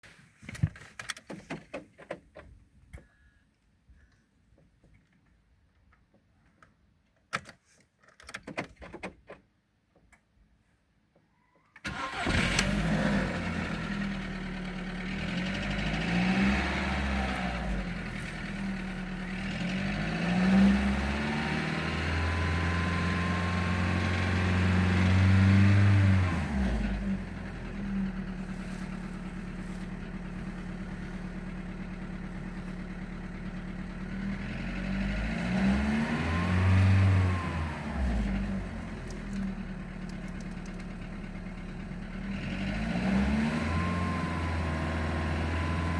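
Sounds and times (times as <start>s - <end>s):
car engine idling and revving: 11.9s - 45.9s.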